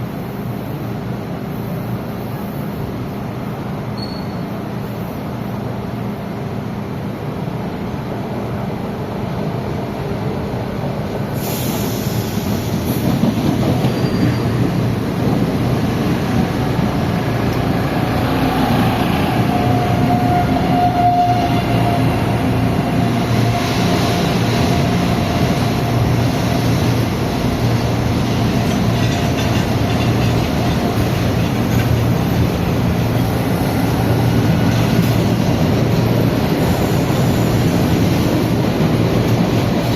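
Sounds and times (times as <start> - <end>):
metro train on rails: 0.0 - 39.9
high wheel squeal: 4.0 - 4.5, 13.8 - 14.8, 18.7 - 22.3.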